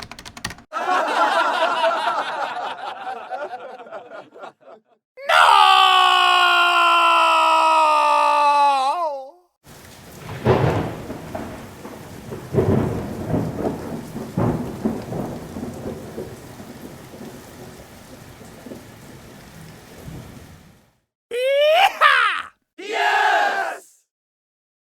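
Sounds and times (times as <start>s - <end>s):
steady rain: 9.6s - 21.0s
thunder crashing and rumbling: 9.7s - 20.6s.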